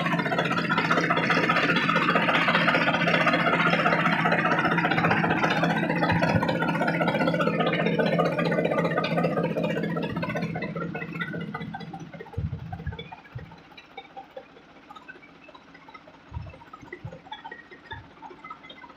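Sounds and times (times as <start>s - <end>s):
tractor engine running: 0.0s - 18.9s.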